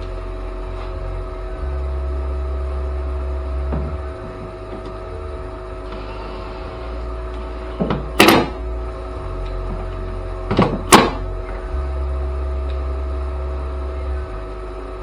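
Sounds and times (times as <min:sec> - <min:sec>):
steady mechanical hum: 0:00.0 - 0:15.0
double knocks: 0:03.6 - 0:05.2.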